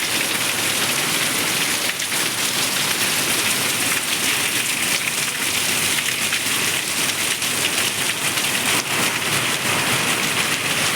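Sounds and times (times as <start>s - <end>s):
heavy rain pouring: 0.0s - 10.9s.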